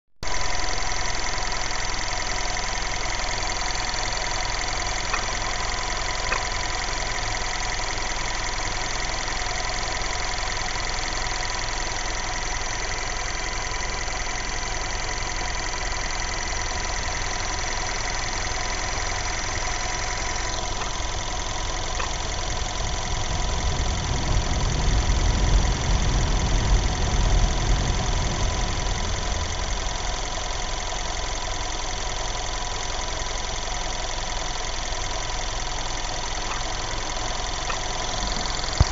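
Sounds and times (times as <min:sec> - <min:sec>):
car engine idling: 0:00.3 - 0:38.9
low rumble: 0:18.8 - 0:32.1.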